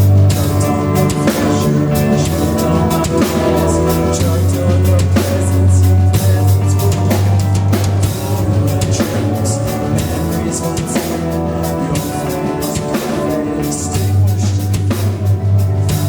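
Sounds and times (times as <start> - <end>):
deep bass line: 0.0 - 16.0
sustained guitar chords: 0.0 - 16.0.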